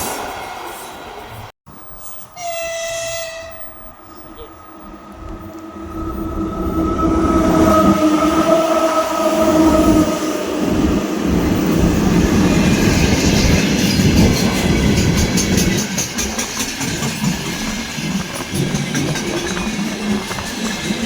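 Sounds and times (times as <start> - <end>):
train rumbling past: 0.0 - 21.0
train whine sinking in pitch: 1.9 - 14.2
wheels clacking over rail joints: 11.3 - 21.0.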